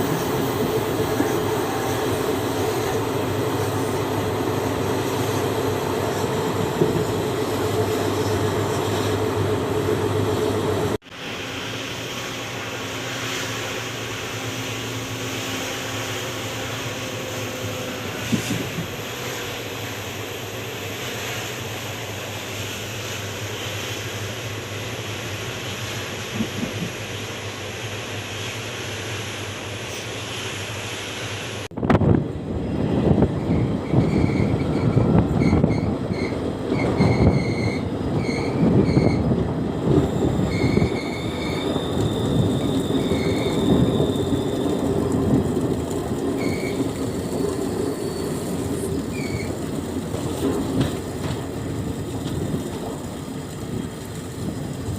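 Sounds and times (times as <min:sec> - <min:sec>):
train rumbling on rails: 0:00.0 - 0:54.9
wheel squeals: 0:33.4 - 0:39.3, 0:39.9 - 0:49.7.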